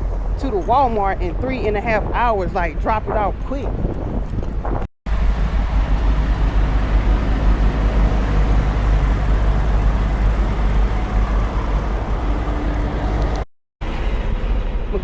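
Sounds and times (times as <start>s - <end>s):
diesel truck engine running: 5.1s - 15.0s.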